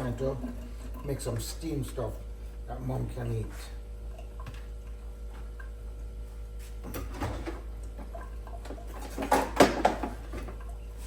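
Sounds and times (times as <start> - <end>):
rustling in kitchen: 6.2 - 11.0.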